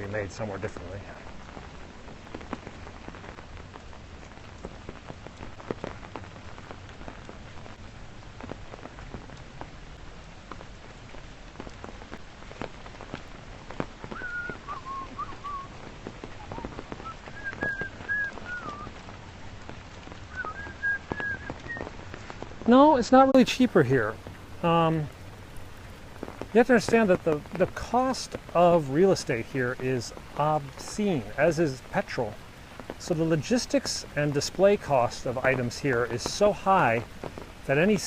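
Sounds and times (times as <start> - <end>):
steady rain falling: 0.0 - 38.0
wavering whistled notes: 14.2 - 15.7, 16.4 - 18.9, 20.3 - 21.8.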